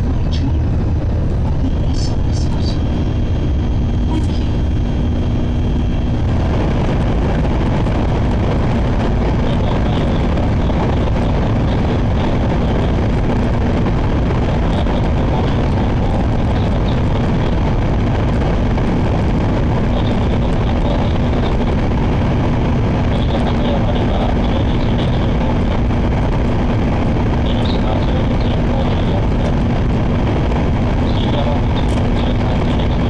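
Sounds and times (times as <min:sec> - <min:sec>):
low hum: 0:00.0 - 0:33.0
train cabin rumble: 0:00.0 - 0:33.0.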